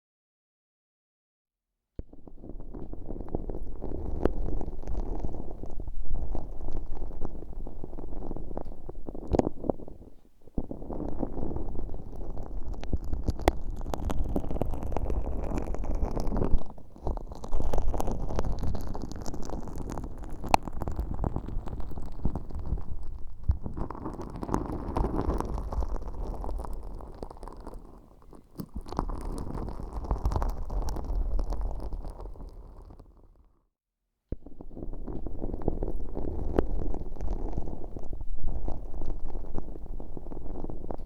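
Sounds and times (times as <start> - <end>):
sticky slime squishing: 3.3 - 33.0.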